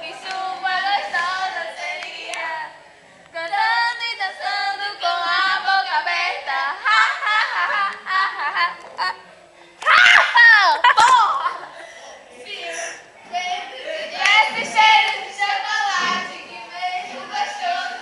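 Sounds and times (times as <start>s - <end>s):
young voices singing: 0.0s - 8.8s, 12.5s - 18.0s.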